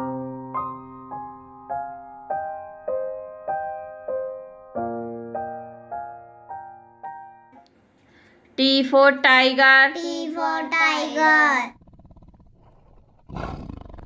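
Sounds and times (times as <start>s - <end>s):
soft keyboard melody: 0.0s - 7.7s.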